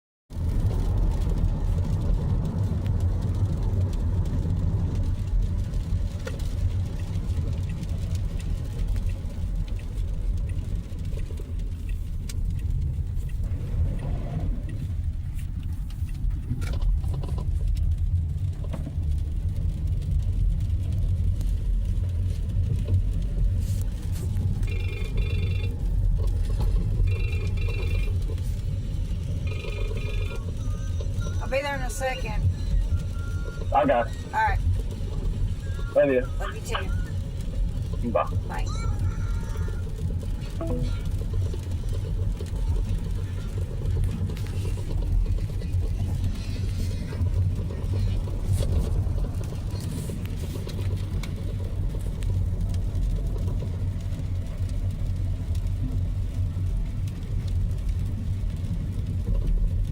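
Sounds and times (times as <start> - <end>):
car road and engine rumble: 0.3 - 59.9
phone ringing: 29.5 - 31.4, 40.6 - 41.0.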